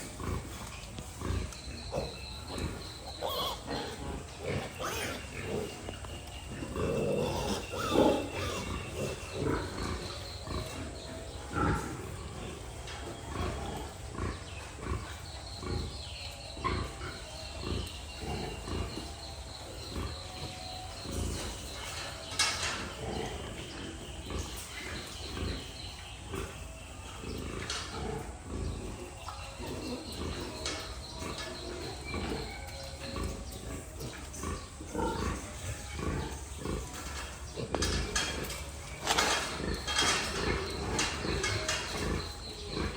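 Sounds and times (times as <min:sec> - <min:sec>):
pigs grunting: 0:00.0 - 0:42.9
high-pitched calls: 0:03.1 - 0:03.7.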